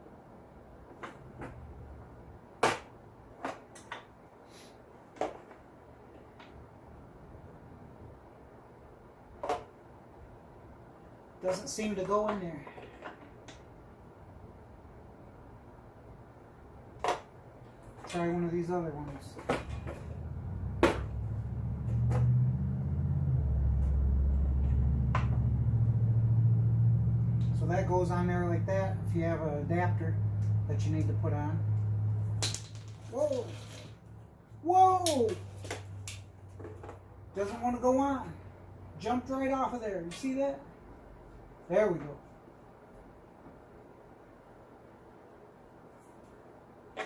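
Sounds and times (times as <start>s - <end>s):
low steady rumble: 18.5s - 40.0s.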